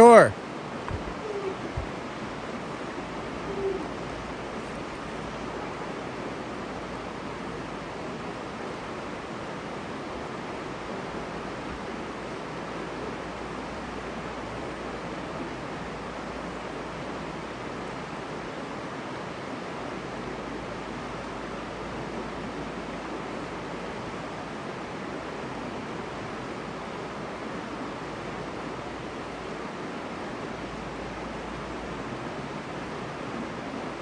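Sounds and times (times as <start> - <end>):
creek rapids rushing: 0.0 - 18.8.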